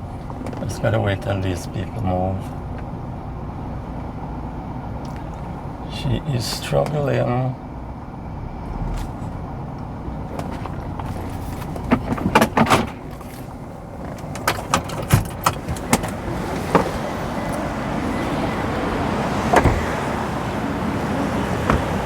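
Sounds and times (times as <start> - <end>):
vehicle noise: 0.0 - 22.0.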